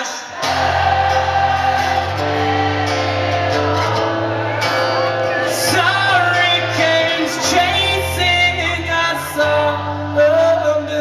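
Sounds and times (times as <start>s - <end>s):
person singing: 0.0s - 11.0s
rock band playing live: 0.0s - 11.0s.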